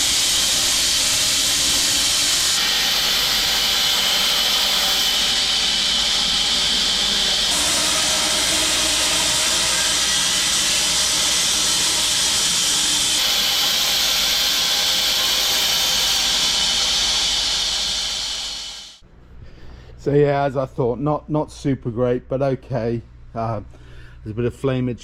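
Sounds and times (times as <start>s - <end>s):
bandsaw cutting log: 0.0s - 18.8s.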